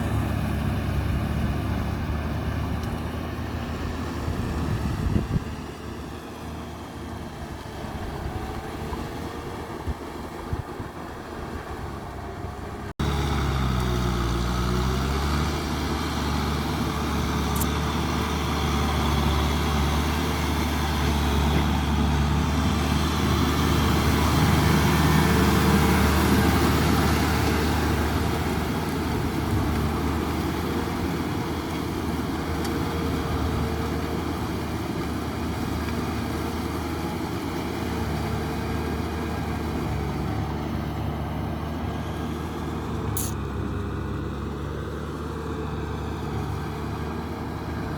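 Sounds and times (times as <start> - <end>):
tractor engine running: 0.0 - 47.9
wind on microphone: 4.2 - 5.8.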